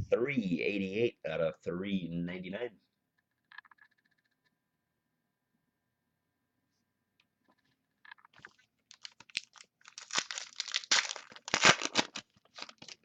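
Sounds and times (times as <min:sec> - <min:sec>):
foil pack tearing and crinkling: 0:08.9 - 0:13.0.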